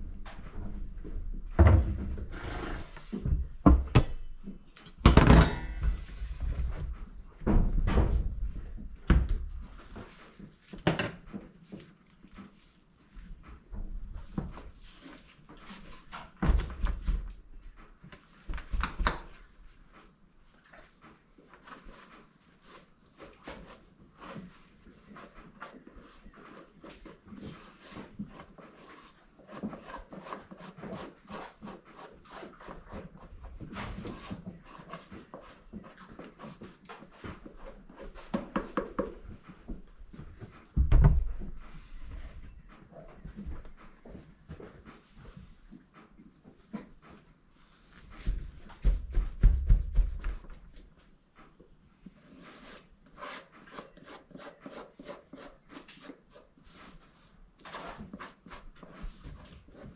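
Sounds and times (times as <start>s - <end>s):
footsteps: 32.3s - 51.6s.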